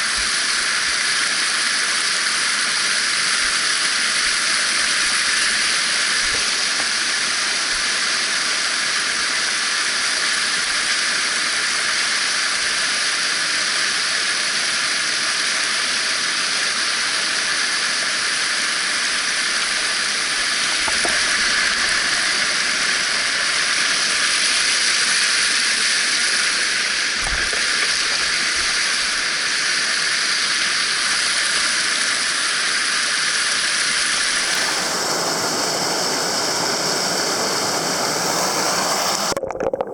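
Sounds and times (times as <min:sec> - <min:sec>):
water rushing over rocks: 0:20.5 - 0:24.2, 0:27.0 - 0:29.7, 0:34.0 - 0:39.9.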